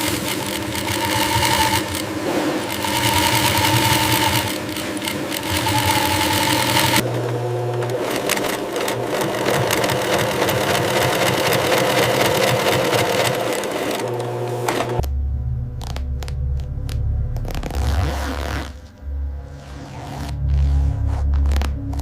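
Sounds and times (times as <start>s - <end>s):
sewing machine running: 0.0s - 15.0s.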